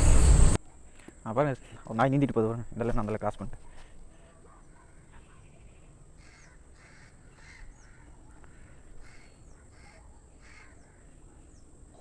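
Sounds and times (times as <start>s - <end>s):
faint crows cawing: 6.2s - 11.2s.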